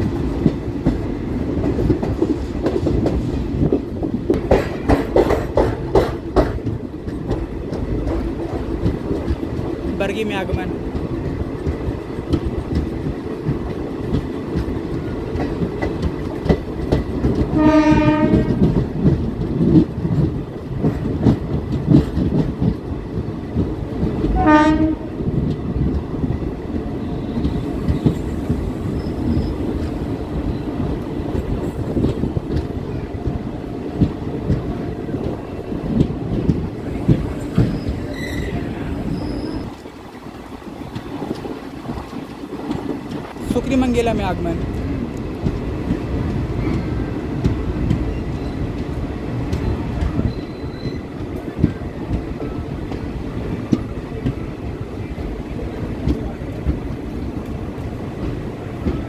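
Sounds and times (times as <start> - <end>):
wheels clattering over rail joints: 0.0 - 30.3
train rumbling: 0.0 - 59.0
train horn blasts: 17.6 - 18.7, 24.4 - 25.2.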